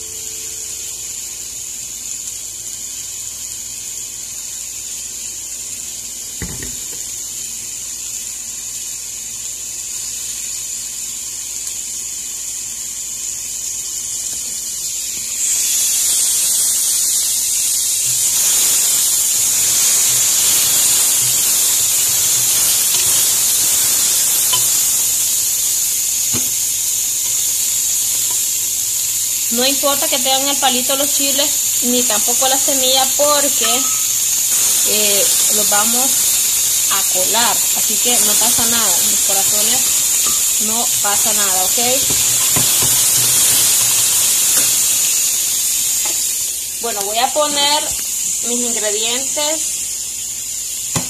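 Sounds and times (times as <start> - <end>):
vegetables sizzling in oil: 0.0 - 51.0
spatula stirring: 19.6 - 28.6, 33.3 - 45.3.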